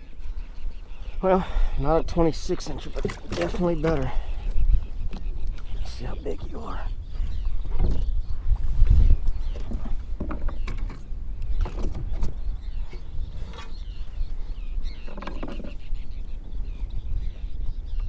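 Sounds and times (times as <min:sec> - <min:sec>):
wind buffeting microphone: 0:00.0 - 0:18.0
kayak and gear knocks and creaks: 0:02.5 - 0:05.8, 0:07.1 - 0:14.0, 0:14.9 - 0:15.9.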